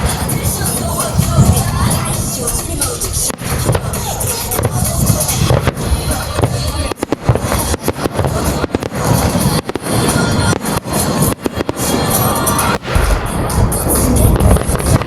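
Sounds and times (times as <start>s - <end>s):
crackling rumble: 0.0s - 15.0s
fireworks bursting: 0.0s - 15.0s
music playing: 0.0s - 15.0s.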